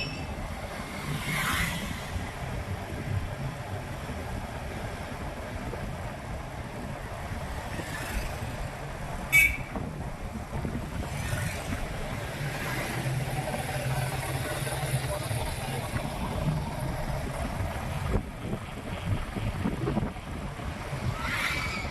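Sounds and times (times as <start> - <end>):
street traffic: 0.0 - 21.9
motorbike engine rumble: 1.8 - 21.9
vehicle horn honk: 9.3 - 9.8.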